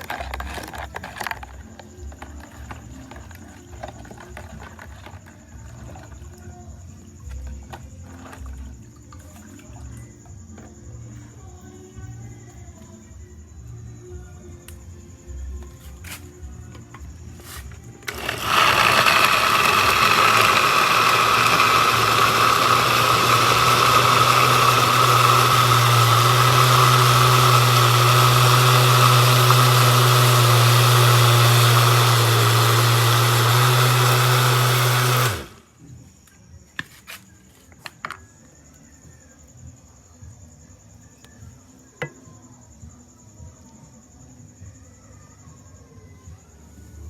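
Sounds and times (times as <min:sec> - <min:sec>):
electric blender running: 0:18.0 - 0:35.6.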